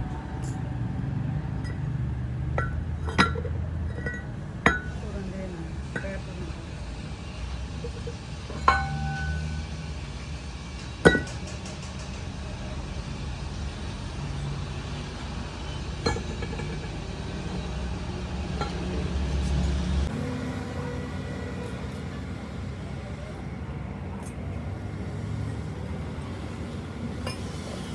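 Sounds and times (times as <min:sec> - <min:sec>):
steady low hum: 0:00.0 - 0:21.4
metallic clanks of steel parts: 0:00.4 - 0:00.7, 0:01.6 - 0:19.8, 0:27.2 - 0:27.9.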